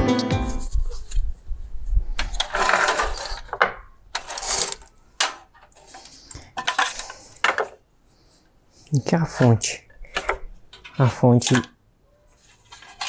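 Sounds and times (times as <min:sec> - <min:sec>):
handling computer parts: 0:02.2 - 0:07.9, 0:08.9 - 0:13.0.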